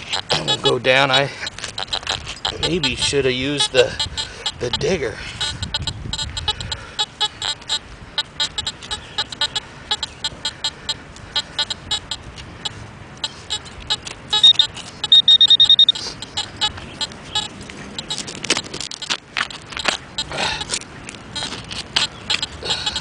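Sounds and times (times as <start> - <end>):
pinpointer chirps: 0.0 - 18.3
rapid high beeping: 0.0 - 18.3, 19.8 - 20.7.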